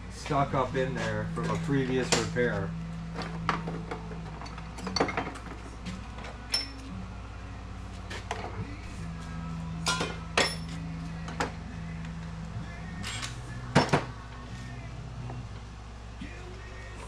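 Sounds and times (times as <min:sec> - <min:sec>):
steady low hum: 0:00.0 - 0:17.0
metal tools clinking: 0:04.2 - 0:05.6, 0:06.5 - 0:06.9, 0:09.8 - 0:10.8.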